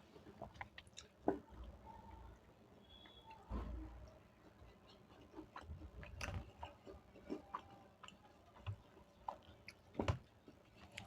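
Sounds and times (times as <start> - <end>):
person chewing food: 0.0 - 1.5, 4.4 - 11.0.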